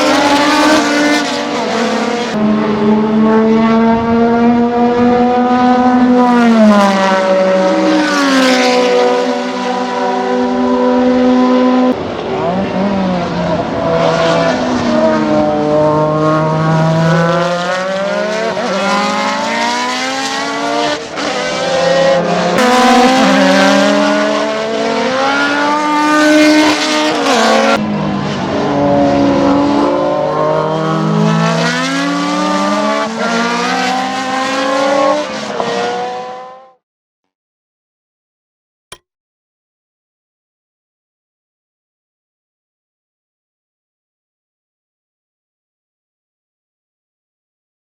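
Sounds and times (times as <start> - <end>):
racing car engine revving: 0.0 - 36.8.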